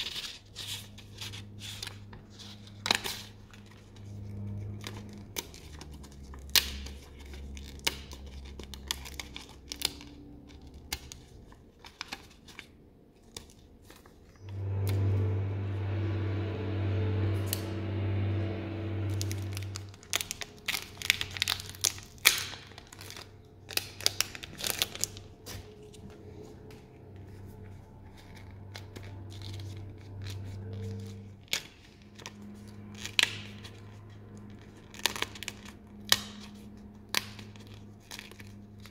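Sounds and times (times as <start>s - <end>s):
packaging crinkling and tearing: 0.0s - 14.3s, 19.5s - 26.1s, 28.6s - 38.9s
steady low hum: 14.4s - 21.2s.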